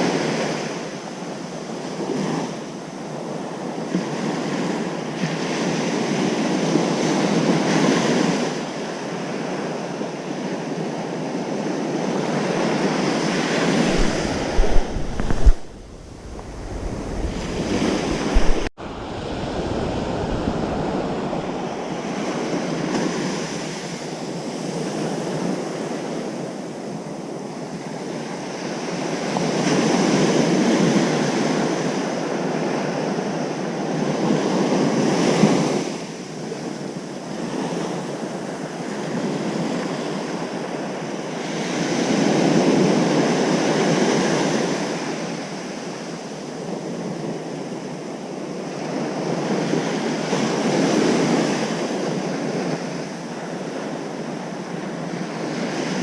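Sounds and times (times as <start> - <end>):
ocean surf breaking on beach: 0.0 - 56.0.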